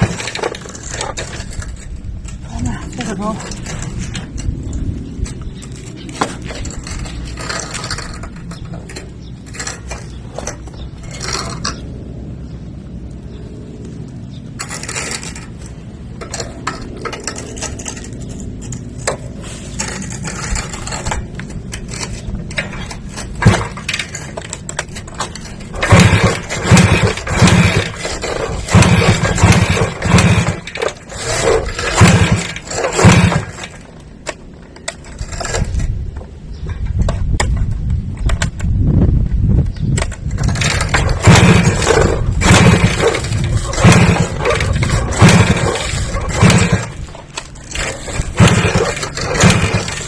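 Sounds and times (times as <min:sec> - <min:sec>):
clicks and scraping: 0:00.0 - 0:12.0, 0:13.1 - 0:38.8, 0:39.5 - 0:50.0
motor running and revving: 0:25.8 - 0:33.8, 0:40.5 - 0:50.0.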